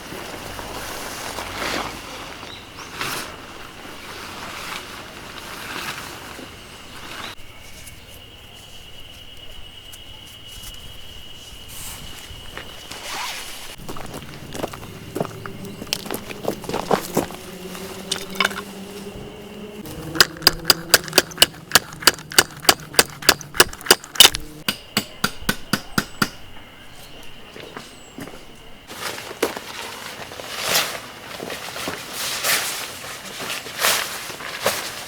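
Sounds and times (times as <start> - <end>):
hammer strikes: 20.1 - 26.4.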